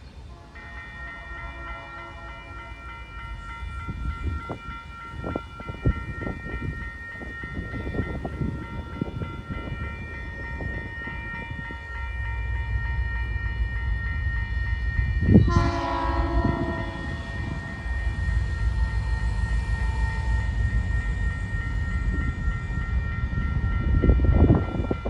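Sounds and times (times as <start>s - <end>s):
crossing warning bell ringing: 0.0s - 25.0s
diesel locomotive rumble: 14.9s - 24.7s.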